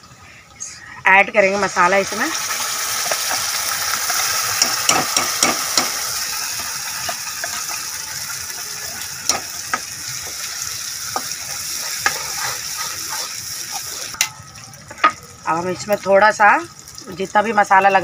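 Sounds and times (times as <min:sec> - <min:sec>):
spice paste sizzling in oil: 0:01.2 - 0:18.0
steel spoon scraping a pan: 0:11.1 - 0:14.3.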